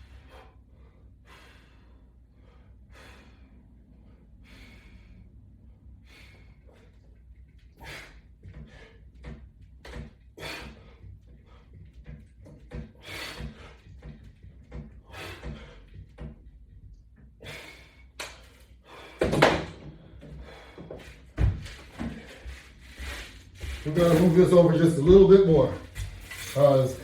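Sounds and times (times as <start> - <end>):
exercise equipment knocks and clunks: 8.3 - 17.4, 19.1 - 22.4.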